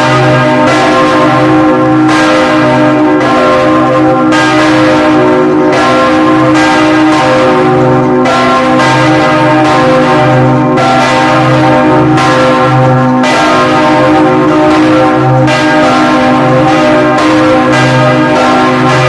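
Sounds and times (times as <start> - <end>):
church bells pealing: 0.0 - 19.0.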